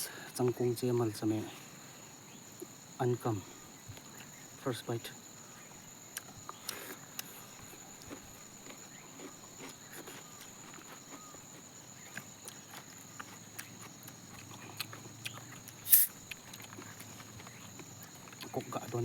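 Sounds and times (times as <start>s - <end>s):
insects droning: 0.0s - 19.0s
person chewing: 6.1s - 19.0s.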